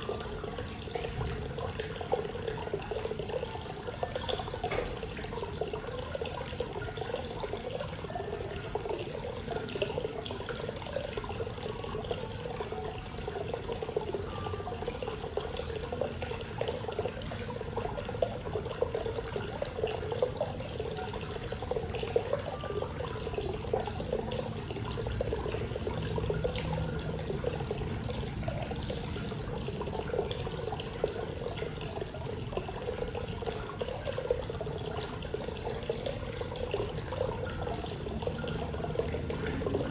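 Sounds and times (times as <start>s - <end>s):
water pouring into bath: 0.0s - 39.9s.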